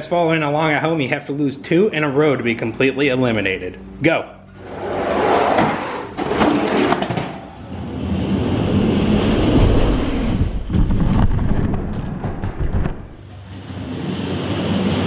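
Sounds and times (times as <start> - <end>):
toy trucks clattering: 6.1 - 7.6.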